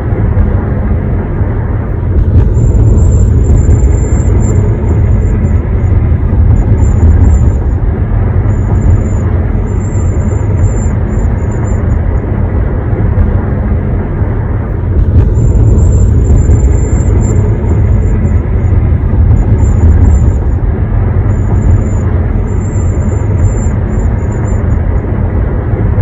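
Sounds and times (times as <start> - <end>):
road and engine rumble: 0.0 - 26.0
piercing high whistle: 8.5 - 12.0.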